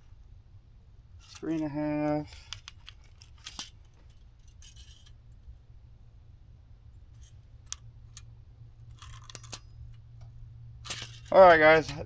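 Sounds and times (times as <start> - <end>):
steady low hum: 0.0 - 12.0
metallic rattles of hand tools: 1.2 - 5.2, 10.8 - 12.0.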